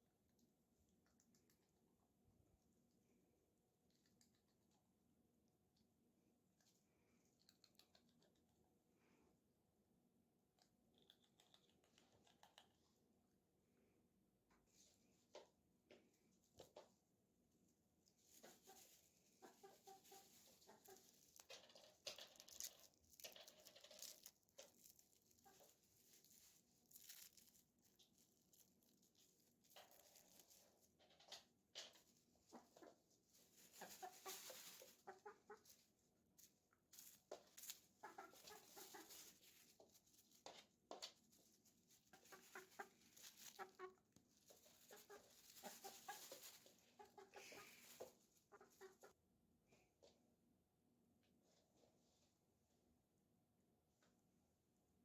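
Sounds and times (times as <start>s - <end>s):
chicken clucking: 18.1s - 26.5s, 29.9s - 36.1s, 37.0s - 49.2s.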